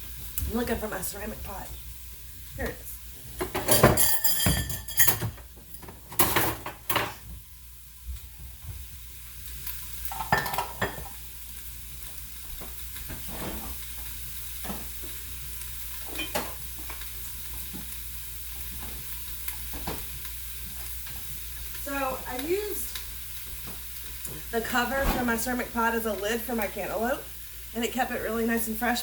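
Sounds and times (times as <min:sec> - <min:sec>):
food sizzling in hot oil: 0:00.0 - 0:29.0
kitchenware knocking and clattering: 0:03.4 - 0:05.5, 0:06.1 - 0:07.2, 0:10.1 - 0:11.1.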